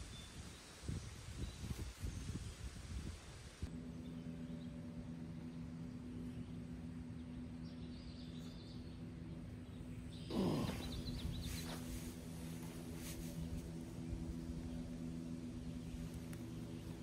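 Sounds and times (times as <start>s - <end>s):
steady low hum: 0.0s - 17.0s
small birds chirping: 3.7s - 17.0s.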